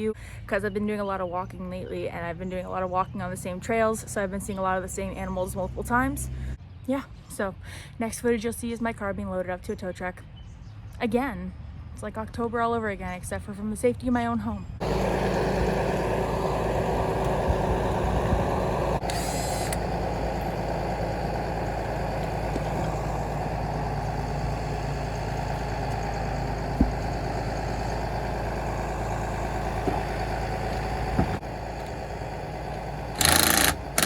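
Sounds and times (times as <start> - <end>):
truck engine idling: 14.8 - 34.0
sharp knocks: 26.7 - 27.3.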